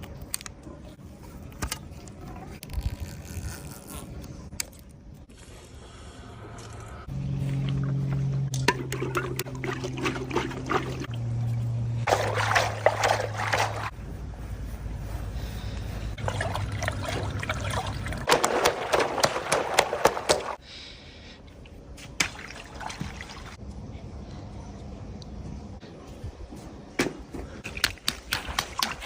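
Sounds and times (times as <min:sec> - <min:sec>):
low steady hum: 0:00.0 - 0:29.0
water pouring and splashing: 0:08.5 - 0:11.2, 0:12.0 - 0:14.0, 0:16.2 - 0:20.6, 0:22.1 - 0:23.6, 0:27.7 - 0:29.0.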